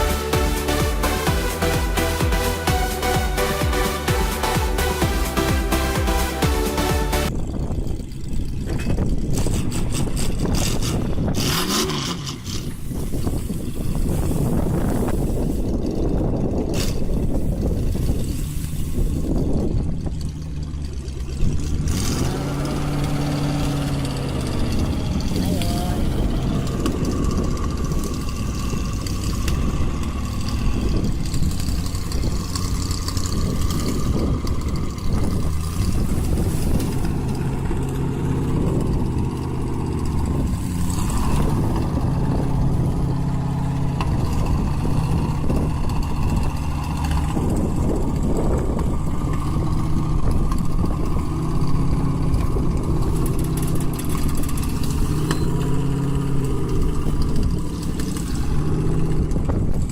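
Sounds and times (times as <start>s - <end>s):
vehicle engine revving: 0.0s - 7.4s, 8.0s - 59.9s.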